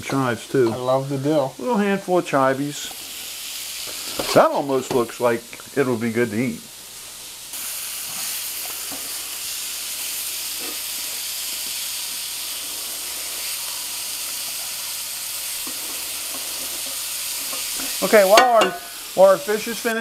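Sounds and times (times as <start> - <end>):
fish and vegetables sizzling: 0.0 - 20.0.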